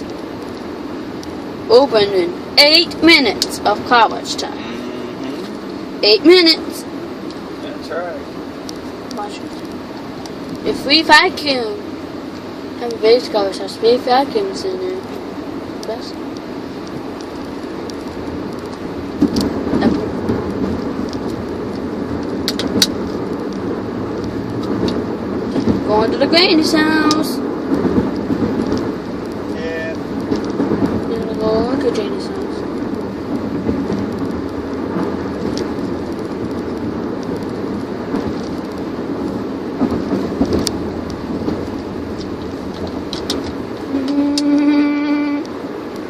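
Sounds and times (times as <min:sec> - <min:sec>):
car road and engine noise: 0:00.0 - 0:46.0
sharp clicks: 0:22.4 - 0:23.6.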